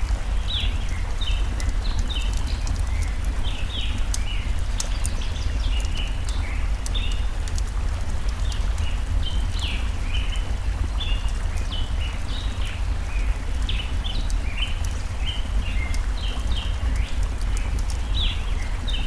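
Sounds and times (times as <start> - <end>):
campfire crackling: 0.0 - 19.0
stream rushing: 0.0 - 19.0.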